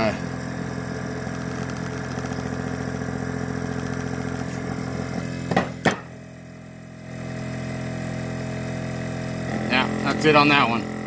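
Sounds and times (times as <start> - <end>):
air compressor pulsing: 0.0 - 11.0
sharp clicks: 1.3 - 2.6.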